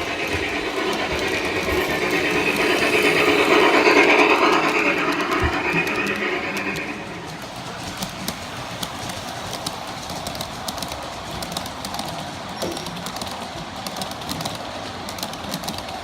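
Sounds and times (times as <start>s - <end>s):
model train running on track: 0.0s - 16.0s
wheels clicking on rails: 0.0s - 16.0s.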